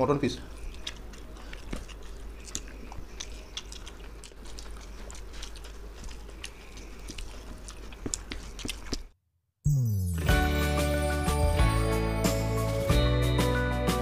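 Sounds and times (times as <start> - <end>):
people chewing and mouth clicks: 0.0 - 9.2.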